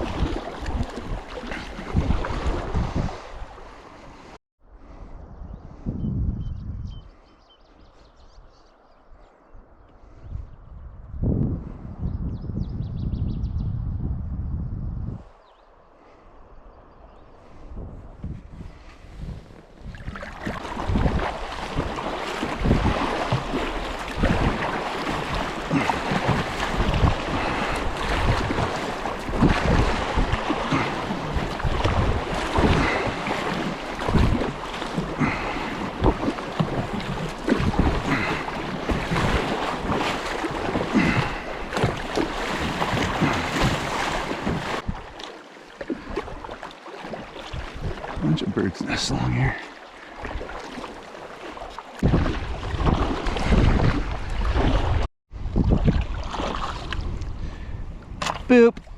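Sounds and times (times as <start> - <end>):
wind buffeting microphone: 0.0 - 7.2, 10.0 - 15.6, 16.4 - 45.2, 47.2 - 48.5, 52.0 - 58.9
river water rushing: 20.3 - 48.4.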